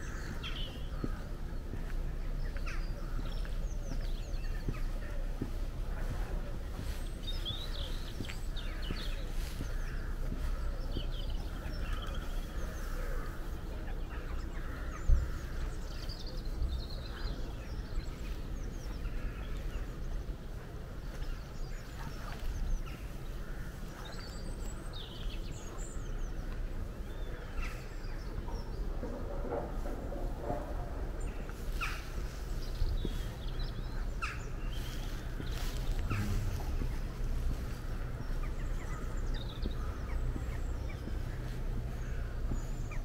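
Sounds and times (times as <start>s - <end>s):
songbirds singing: 0.0s - 43.0s
low rumble: 28.0s - 43.0s.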